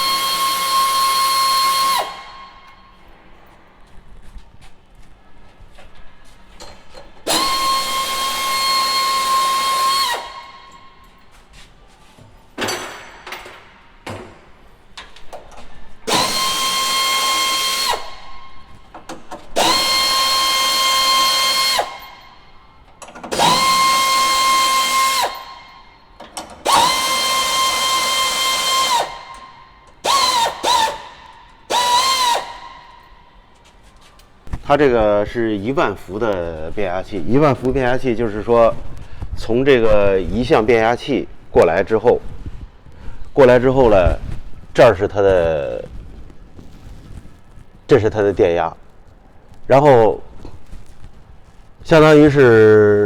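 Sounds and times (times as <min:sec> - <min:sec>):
electric drill whining: 0:00.0 - 0:02.9, 0:07.2 - 0:11.0, 0:16.0 - 0:22.5, 0:23.3 - 0:33.1.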